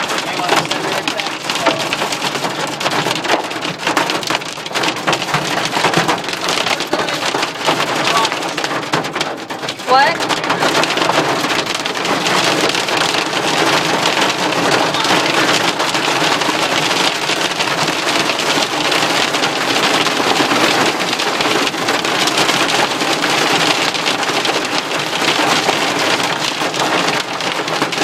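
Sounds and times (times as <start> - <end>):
hail and rain on car roof: 0.0 - 28.0.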